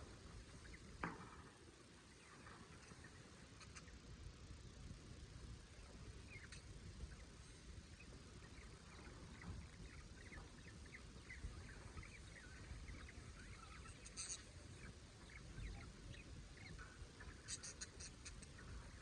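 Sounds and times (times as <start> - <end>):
budgerigars chattering: 2.1 - 4.0, 5.8 - 19.0.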